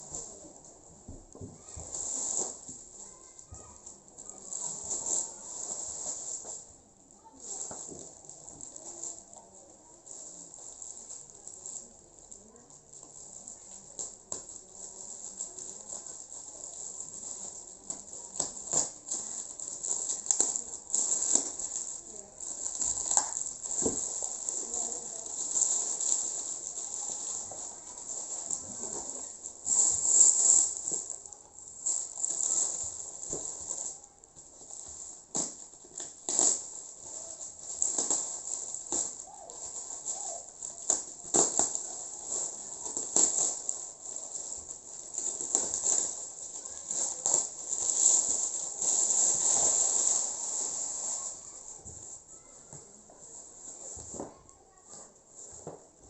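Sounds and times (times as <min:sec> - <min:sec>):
packaging rustling: 0:07.3 - 0:51.8.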